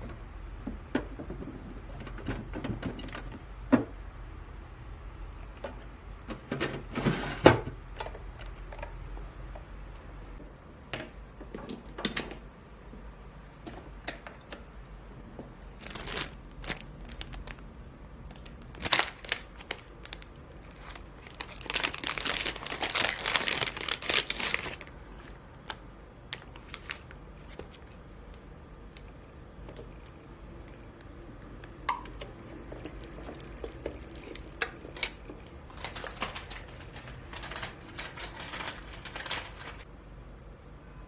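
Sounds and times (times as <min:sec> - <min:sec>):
crinkling and rustling: 0:15.4 - 0:39.9.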